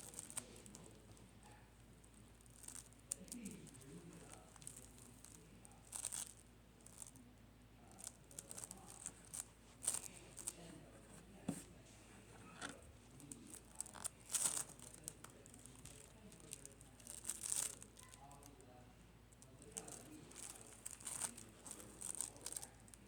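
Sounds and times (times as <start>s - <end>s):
slime crackling and popping: 2.2s - 7.2s, 13.2s - 18.5s, 19.6s - 23.0s.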